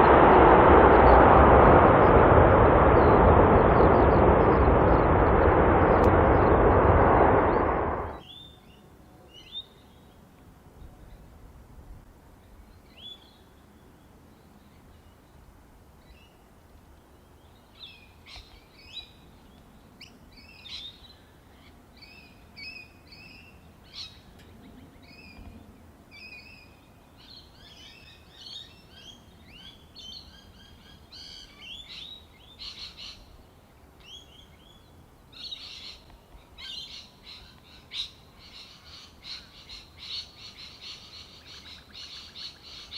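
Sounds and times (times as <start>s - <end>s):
faint low hum: 0.0s - 17.6s.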